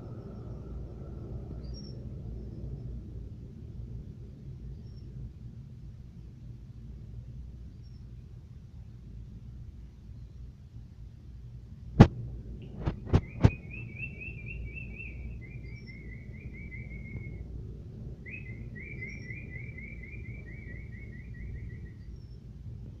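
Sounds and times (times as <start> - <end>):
canary singing trills: 13.1 - 17.4, 18.2 - 22.5.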